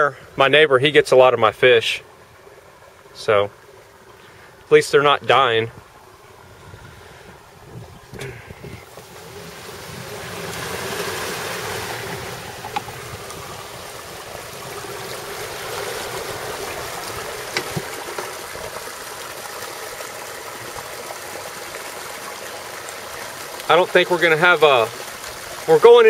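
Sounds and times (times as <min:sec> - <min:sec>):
water rushing over spillway: 0:08.2 - 0:26.0.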